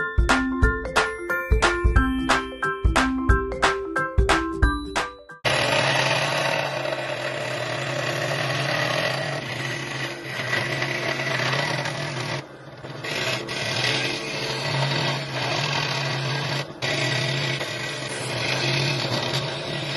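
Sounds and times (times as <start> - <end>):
power tool grinding wood: 5.4 - 19.9.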